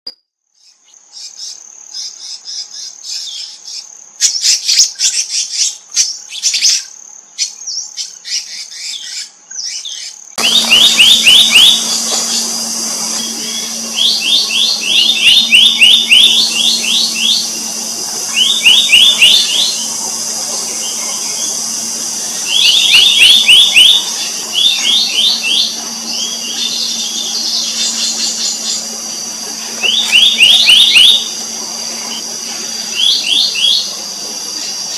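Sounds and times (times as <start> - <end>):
high insect drone: 10.1 - 34.9
bird calls of sharp high notes: 10.4 - 34.9
steady low hum: 10.4 - 34.9.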